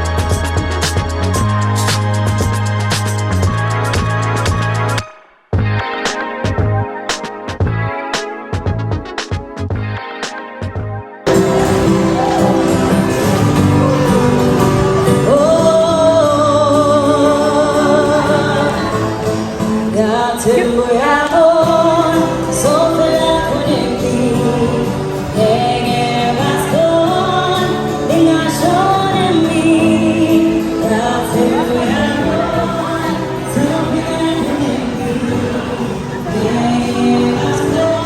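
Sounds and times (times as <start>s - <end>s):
person singing with vibrato: 11.3s - 38.0s.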